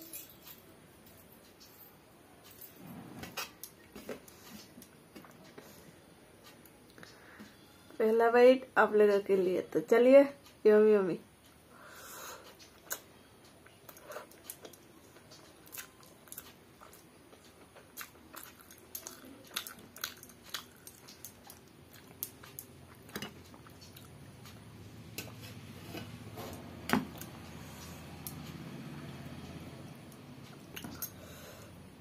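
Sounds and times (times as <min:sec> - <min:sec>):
woman chewing rice: 0:12.2 - 0:31.8.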